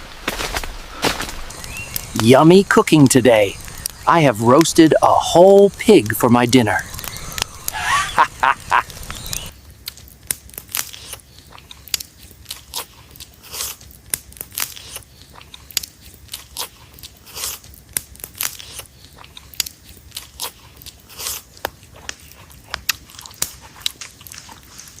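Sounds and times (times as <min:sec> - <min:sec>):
crunchy chewing: 0:00.4 - 0:25.0.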